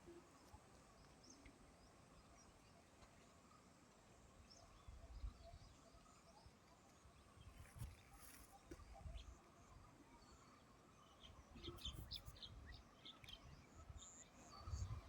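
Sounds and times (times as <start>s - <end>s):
faint bird chirps: 4.4s - 15.0s.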